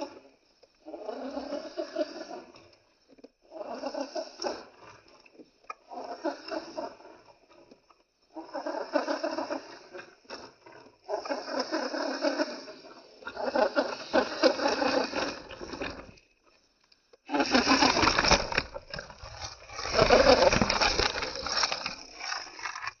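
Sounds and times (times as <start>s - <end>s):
toy car tyres crunching on rocks: 17.4s - 23.0s.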